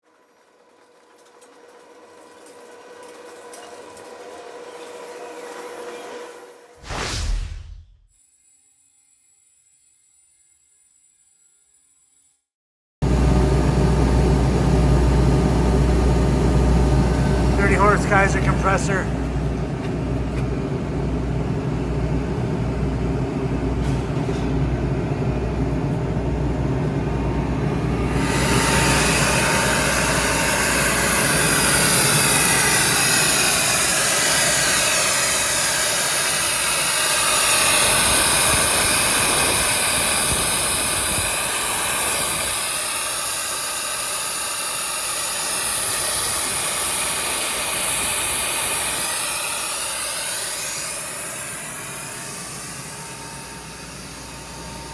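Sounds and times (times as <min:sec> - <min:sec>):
hiss of rushing air: 0:06.8 - 0:08.1
air compressor pulsing hum: 0:13.0 - 0:54.9.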